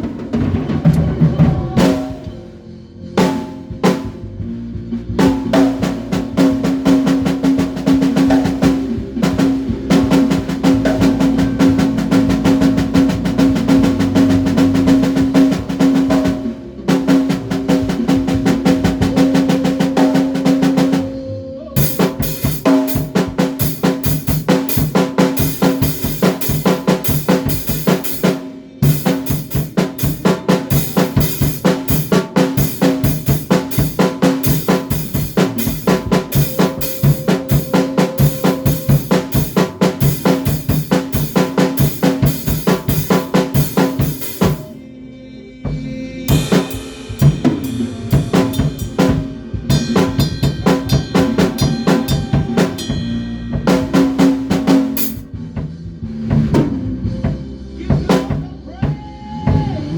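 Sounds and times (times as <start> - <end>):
drum kit playing fast beat: 0.0 - 2.4, 3.2 - 4.2, 5.2 - 21.2, 21.8 - 44.8, 46.3 - 59.8
sustained low bass notes: 0.9 - 6.9.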